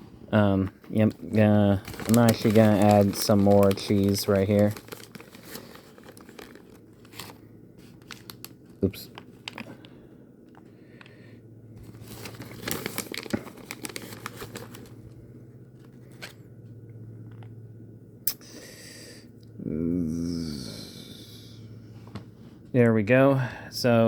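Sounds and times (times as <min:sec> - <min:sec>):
low steady hum: 0:00.0 - 0:24.0
plastic packaging crinkling: 0:01.0 - 0:09.9, 0:11.8 - 0:16.4.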